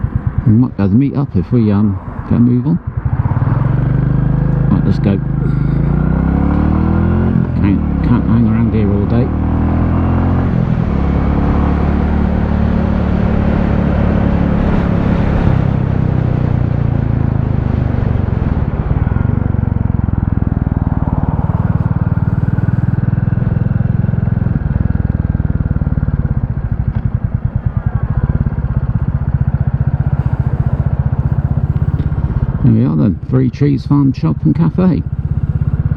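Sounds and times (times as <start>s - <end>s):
motorcycle engine running: 0.0s - 35.9s
road noise: 0.0s - 35.9s
wind noise: 10.4s - 23.1s.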